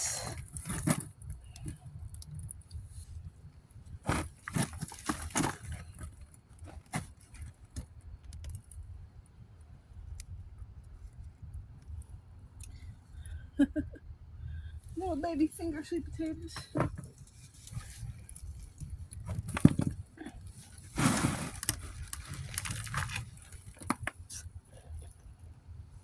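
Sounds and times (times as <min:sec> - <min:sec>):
low steady rumble: 0:00.0 - 0:26.0
hands rustling in soil: 0:15.0 - 0:24.2.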